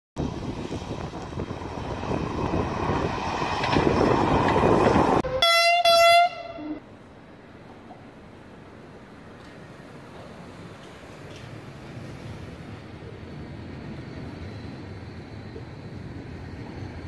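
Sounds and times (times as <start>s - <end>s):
train passing by: 0.2s - 17.0s
train horn blasts: 5.2s - 6.8s.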